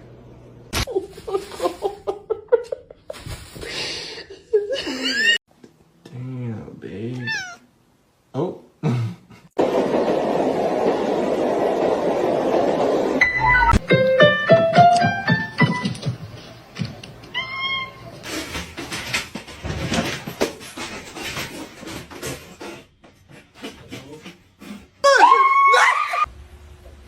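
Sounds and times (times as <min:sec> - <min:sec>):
cat meowing: 0:07.2 - 0:07.6, 0:17.3 - 0:18.2
music notes: 0:13.2 - 0:16.2.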